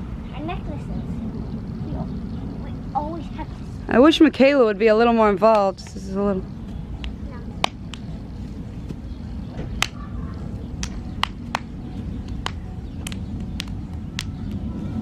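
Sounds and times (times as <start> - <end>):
steady low rumble: 0.0 - 15.0
sharp snaps: 7.0 - 8.1, 9.8 - 11.7, 12.3 - 14.7.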